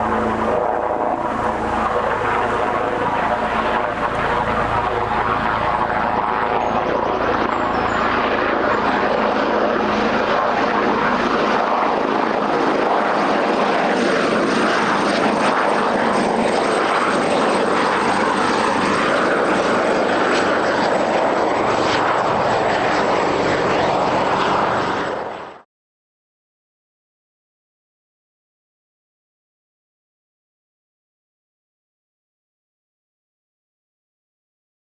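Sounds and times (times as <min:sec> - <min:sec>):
helicopter rotor and turbine noise: 0:00.0 - 0:25.7.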